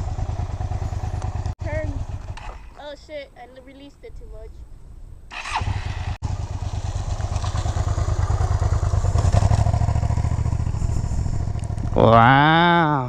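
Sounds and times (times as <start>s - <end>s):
motorcycle engine running: 0.0s - 2.8s, 5.4s - 12.7s.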